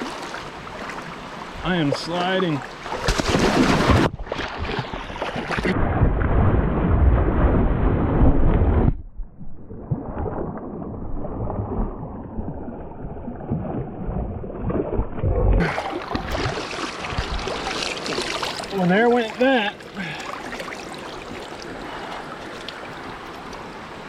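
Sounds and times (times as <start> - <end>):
creek water splashing: 0.0 - 5.8, 12.6 - 24.0.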